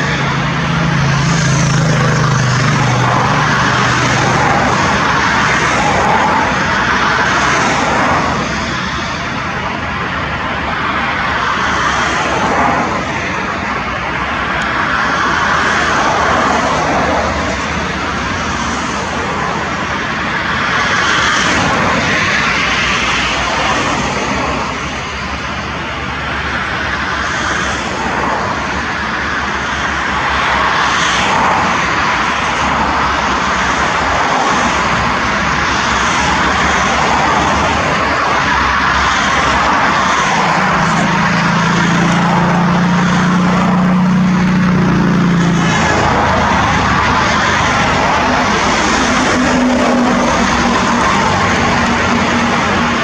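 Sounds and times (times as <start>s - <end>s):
airliner jet engines rushing: 0.0s - 53.0s.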